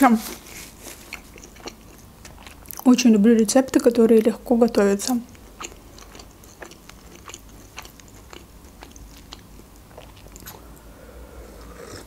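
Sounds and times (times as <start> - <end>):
person chewing food: 0.8 - 2.8, 5.3 - 12.0.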